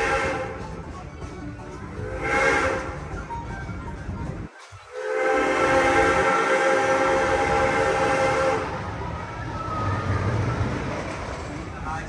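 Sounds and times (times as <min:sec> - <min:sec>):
train whistle chord: 0:00.0 - 0:00.8, 0:02.0 - 0:03.3, 0:04.9 - 0:09.0
train rumbling: 0:00.0 - 0:12.0.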